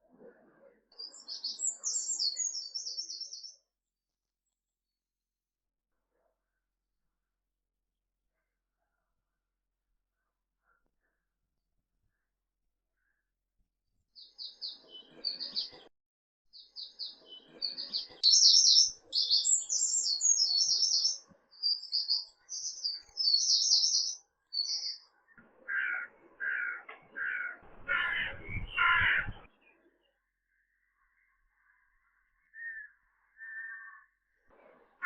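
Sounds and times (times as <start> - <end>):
small birds twittering: 0.9 - 3.6, 14.2 - 15.9, 16.5 - 34.5
large bird harsh calls: 25.6 - 29.6, 32.6 - 34.2.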